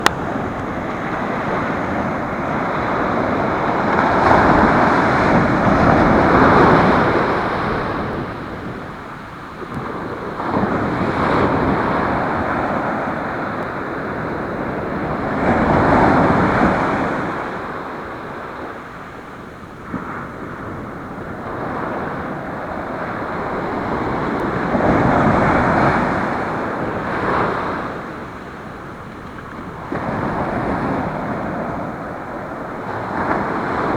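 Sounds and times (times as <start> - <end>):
ocean surf breaking: 0.0 - 33.9
wind noise on microphone: 0.0 - 33.9.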